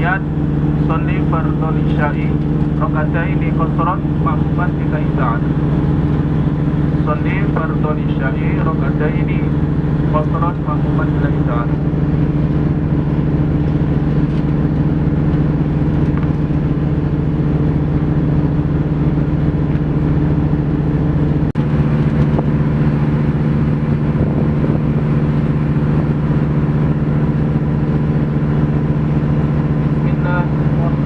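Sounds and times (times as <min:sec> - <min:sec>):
ferry engine droning: 0:00.0 - 0:31.0.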